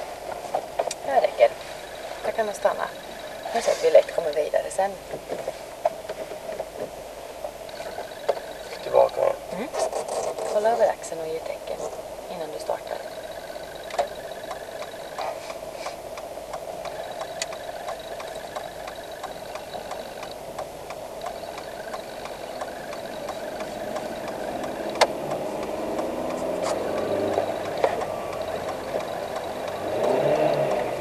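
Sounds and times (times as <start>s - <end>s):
car engine accelerating: 12.6s - 31.0s.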